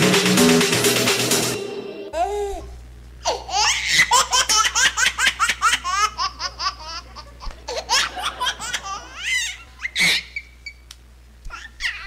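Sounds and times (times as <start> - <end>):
audience laughing: 6.0 - 9.8.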